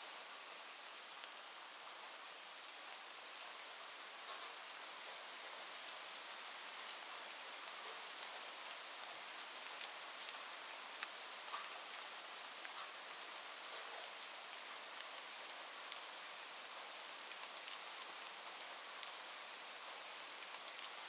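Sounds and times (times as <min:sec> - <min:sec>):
steady rain hiss: 0:00.0 - 0:21.0
raindrop ticks: 0:04.3 - 0:05.2, 0:09.7 - 0:12.0, 0:12.6 - 0:13.0, 0:17.0 - 0:17.8, 0:20.1 - 0:21.0.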